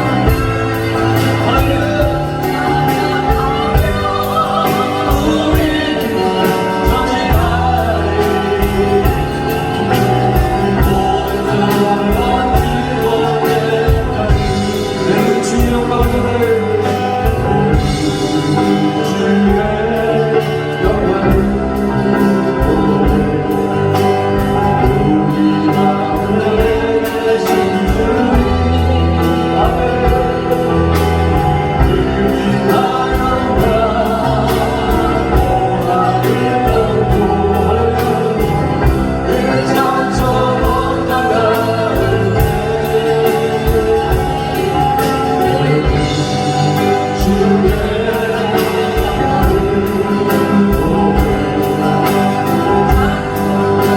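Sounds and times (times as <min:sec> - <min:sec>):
worship song singing with band: 0:00.0 - 0:53.9.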